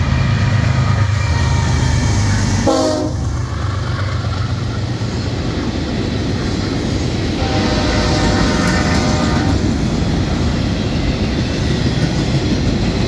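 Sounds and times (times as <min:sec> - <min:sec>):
freight train rumbling past: 0:00.0 - 0:13.0
locomotive air horn blast: 0:02.6 - 0:03.2, 0:07.4 - 0:09.6.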